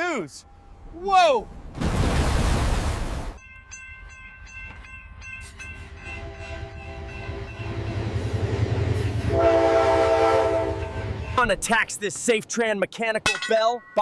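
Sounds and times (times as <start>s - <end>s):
railroad crossing bell ringing: 3.4s - 9.5s, 10.1s - 11.7s, 13.4s - 14.0s
train rumble: 3.4s - 12.4s
train horn: 6.0s - 8.0s, 8.9s - 11.3s.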